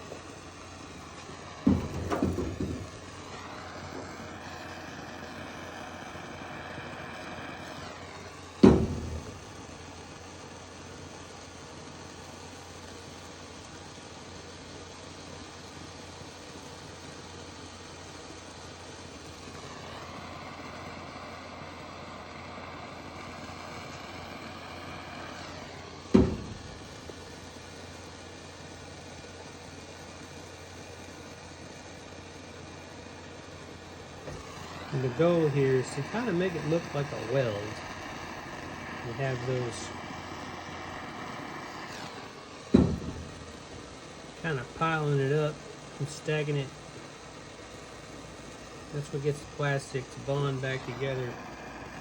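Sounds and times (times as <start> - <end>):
propane torch hissing: 0.0 - 52.0
loud knock: 1.6 - 3.0, 8.6 - 9.5, 26.1 - 27.0, 42.7 - 43.5
loud thumps: 1.6 - 4.2, 8.6 - 9.8, 26.1 - 27.2, 41.3 - 43.9.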